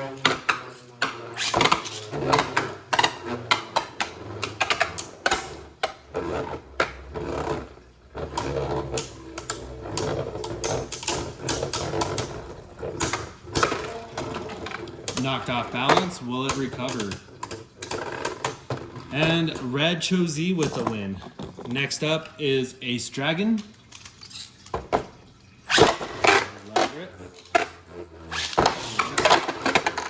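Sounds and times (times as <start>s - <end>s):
whir of spinning tops: 0.0s - 19.4s, 25.6s - 30.0s.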